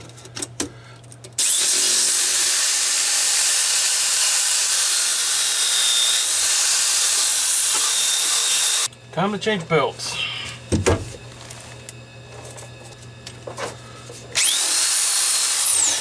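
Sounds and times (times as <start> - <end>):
belt sander grinding steel: 1.4 - 8.9, 14.2 - 16.0.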